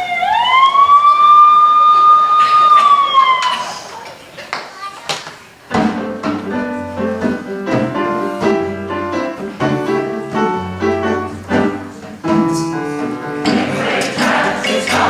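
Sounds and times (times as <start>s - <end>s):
piano playing: 5.8s - 15.0s.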